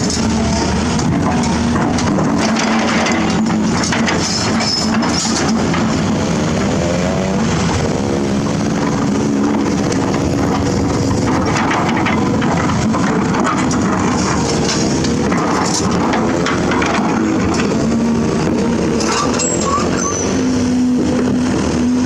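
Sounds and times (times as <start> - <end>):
clatter: 0.0 - 6.1, 8.8 - 20.2
excavator diesel engine: 0.0 - 22.0.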